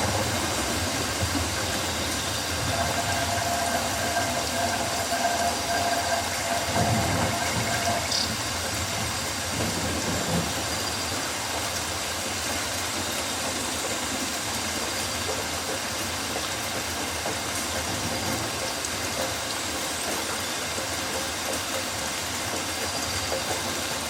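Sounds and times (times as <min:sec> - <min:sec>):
rain falling on leaves: 0:00.0 - 0:24.0.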